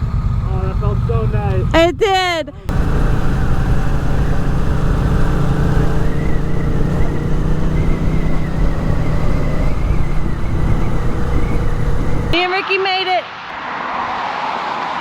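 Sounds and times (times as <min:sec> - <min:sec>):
motorcycle engine cruising: 0:00.0 - 0:02.0, 0:02.7 - 0:12.4
wind and road noise: 0:00.0 - 0:15.0.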